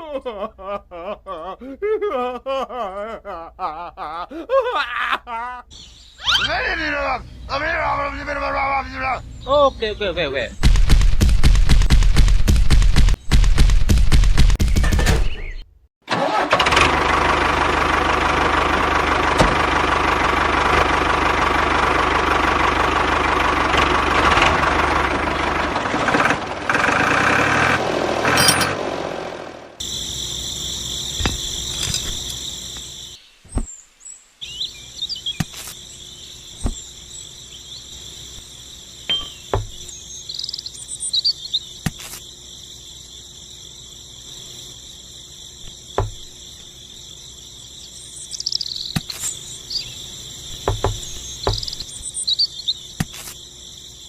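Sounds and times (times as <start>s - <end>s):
crickets chirping: 3.6s - 11.7s, 29.8s - 54.0s.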